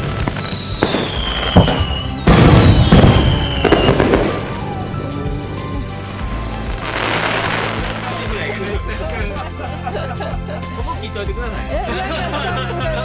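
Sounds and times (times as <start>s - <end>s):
descending firework whistles: 0.0s - 8.8s
fireworks booming and crackling: 0.0s - 9.2s.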